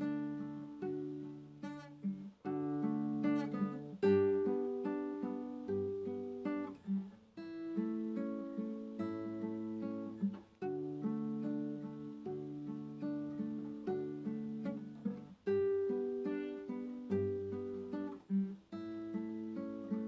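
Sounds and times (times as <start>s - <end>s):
acoustic guitar played softly: 0.0s - 20.0s.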